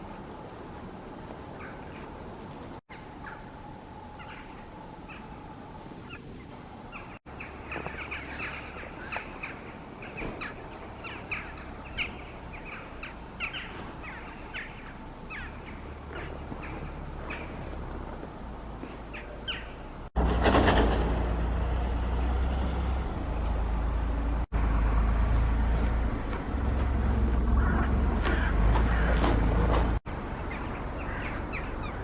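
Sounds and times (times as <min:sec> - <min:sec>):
birds giving short repeated calls: 0:06.0 - 0:18.2, 0:18.8 - 0:20.1.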